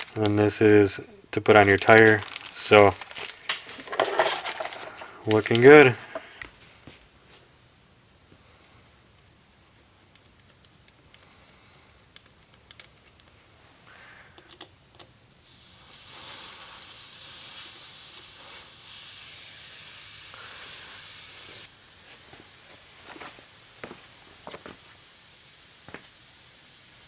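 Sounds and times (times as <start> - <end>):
air hissing out of tire valve: 7.7 - 12.4, 15.3 - 27.0.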